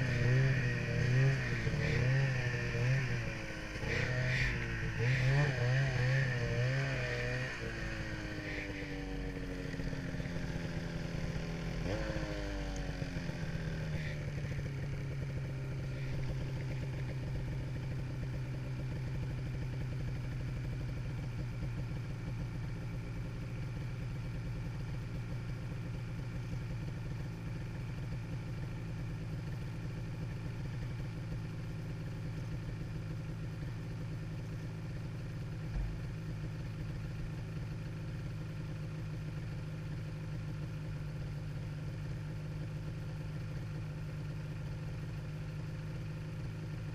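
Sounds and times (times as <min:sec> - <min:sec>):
snowmobile engine running: 0:00.0 - 0:18.7.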